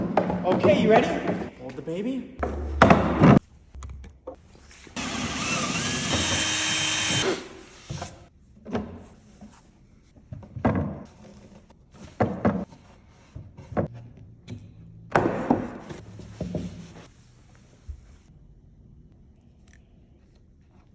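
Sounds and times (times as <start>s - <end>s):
wood knocking and thunking: 0.0s - 1.8s, 2.4s - 3.4s, 13.4s - 16.9s
power tool running: 5.0s - 8.2s.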